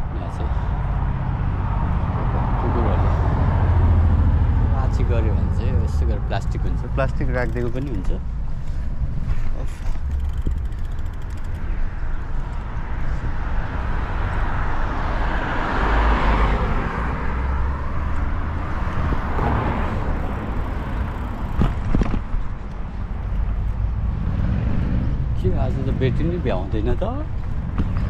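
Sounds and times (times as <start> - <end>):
car passing by: 0.4 - 6.2, 13.1 - 21.6
sharp clicks: 7.2 - 8.2, 9.9 - 11.8.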